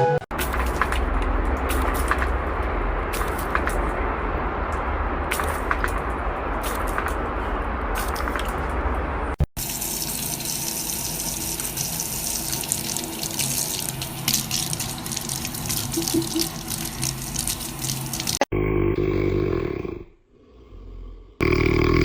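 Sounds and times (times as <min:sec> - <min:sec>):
water running and splashing: 0:09.6 - 0:18.5.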